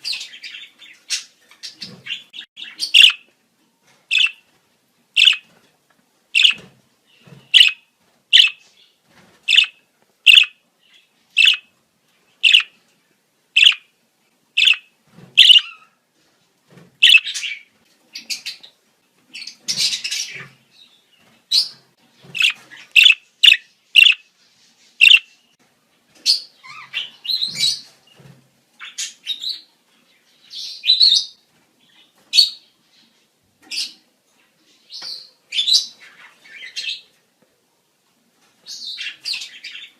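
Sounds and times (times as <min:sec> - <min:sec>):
budgerigars chirping: 0:00.0 - 0:03.3, 0:04.1 - 0:04.4, 0:05.2 - 0:05.5, 0:06.4 - 0:06.7, 0:07.4 - 0:08.7, 0:09.5 - 0:10.6, 0:11.3 - 0:11.7, 0:12.4 - 0:12.8, 0:13.6 - 0:13.9, 0:14.6 - 0:15.9, 0:17.0 - 0:17.6, 0:21.5 - 0:24.3, 0:25.0 - 0:25.4.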